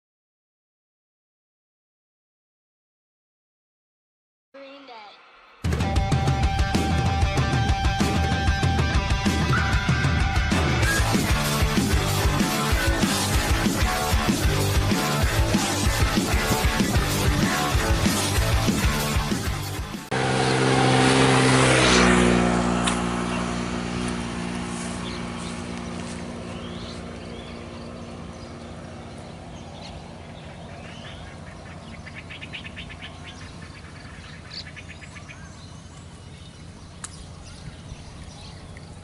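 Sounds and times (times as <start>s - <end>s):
motor engine running: 5.7s - 39.0s
birds chirping: 9.0s - 39.0s
rapid bird trill: 25.0s - 39.0s.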